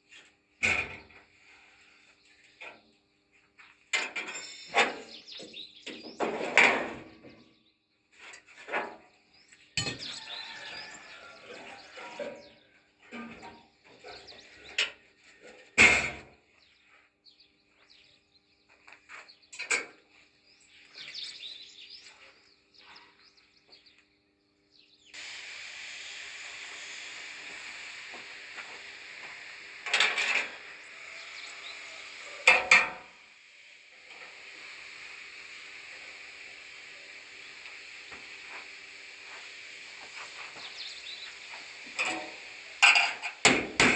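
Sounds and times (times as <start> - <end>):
loud sharp knocks: 43.4 - 43.9.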